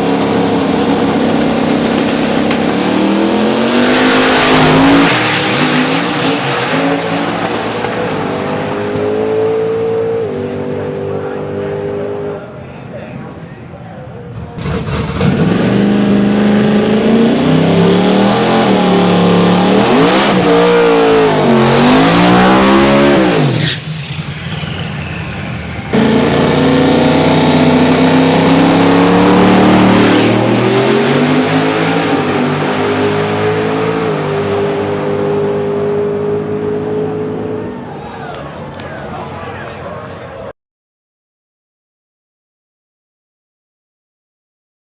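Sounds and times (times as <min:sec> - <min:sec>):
drag car engine at full throttle: 0:00.0 - 0:12.7, 0:14.2 - 0:39.6.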